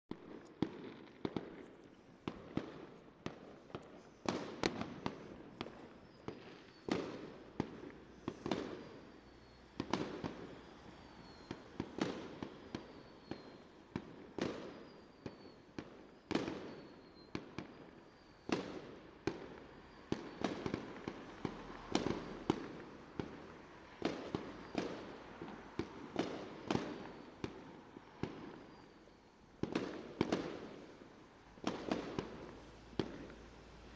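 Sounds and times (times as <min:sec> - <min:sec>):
fireworks bangs: 0:00.1 - 0:33.9
falling whistles: 0:08.2 - 0:13.7.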